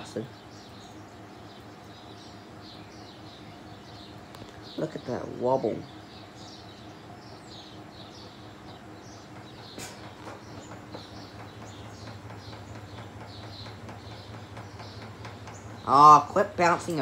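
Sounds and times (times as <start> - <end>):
ceiling fan motor hum: 0.0 - 17.0
small birds chirping: 0.0 - 17.0
fan ticking and clicking: 3.7 - 17.0.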